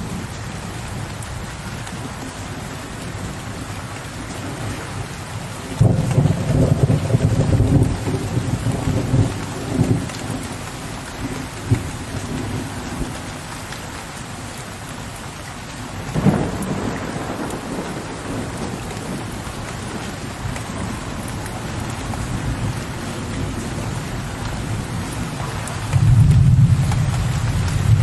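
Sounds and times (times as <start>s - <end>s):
steady rain: 0.0s - 28.0s
rolling thunder: 5.7s - 10.5s, 16.0s - 23.9s, 24.5s - 28.0s.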